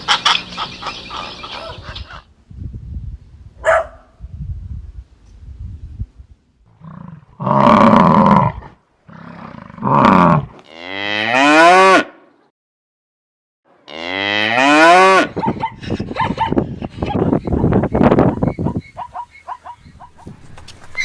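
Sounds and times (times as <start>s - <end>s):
cattle mooing: 13.9s - 15.4s.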